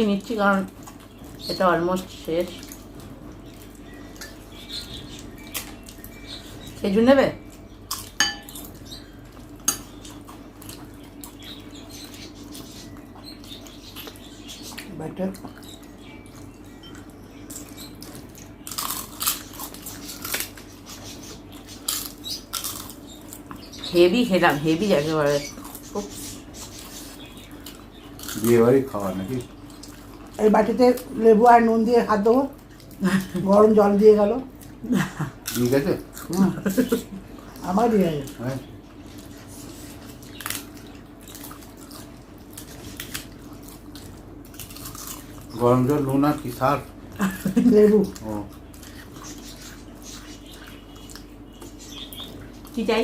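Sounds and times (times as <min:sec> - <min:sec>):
steady low hum: 0:00.0 - 0:53.0
chewing and mouth sounds: 0:00.6 - 0:06.8, 0:07.4 - 0:23.9, 0:29.2 - 0:31.2, 0:32.5 - 0:33.4, 0:34.5 - 0:45.6, 0:47.4 - 0:52.8.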